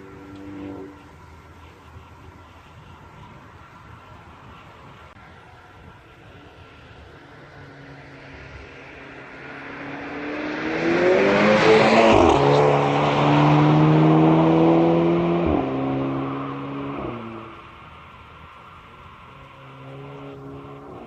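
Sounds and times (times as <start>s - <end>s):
car engine accelerating hard: 0.0s - 1.8s, 7.0s - 17.8s.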